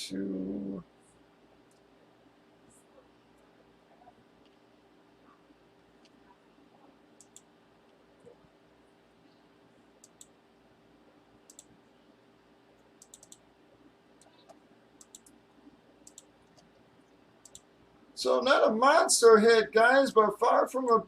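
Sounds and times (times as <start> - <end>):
faint steady hum: 0.0 - 21.0
computer mouse clicks: 7.2 - 8.4, 10.0 - 10.4, 11.5 - 11.8, 12.8 - 13.5, 14.2 - 15.4, 16.0 - 16.8, 17.4 - 17.7.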